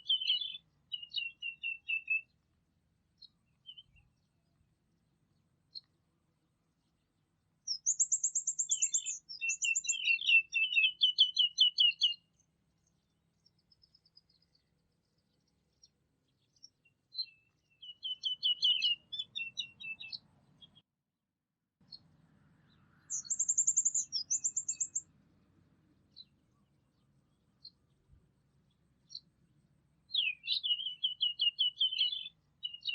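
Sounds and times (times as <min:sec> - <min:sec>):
single bird chirps: 0:00.0 - 0:02.4, 0:03.2 - 0:04.2, 0:07.7 - 0:12.4, 0:13.5 - 0:20.8, 0:21.8 - 0:25.0, 0:30.1 - 0:32.9
songbird singing trills: 0:00.0 - 0:02.4, 0:03.1 - 0:06.0, 0:06.7 - 0:20.8, 0:21.8 - 0:25.1, 0:25.9 - 0:29.4, 0:30.0 - 0:32.9.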